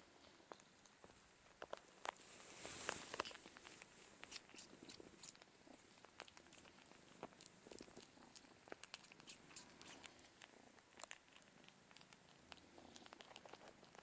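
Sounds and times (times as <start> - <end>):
cats purring: 0.0 - 14.0
kitten suckling clicks and smacks: 2.9 - 14.0.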